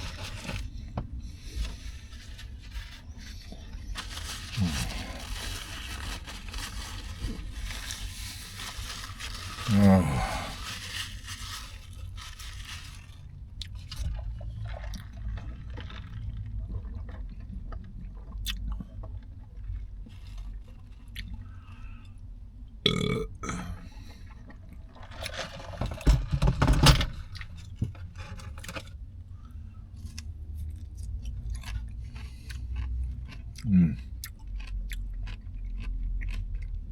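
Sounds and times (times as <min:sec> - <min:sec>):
person burping: 0:09.7 - 0:10.6, 0:22.9 - 0:23.9, 0:33.6 - 0:34.0
chewing with wet mouth clicks: 0:16.6 - 0:19.8, 0:30.1 - 0:36.9.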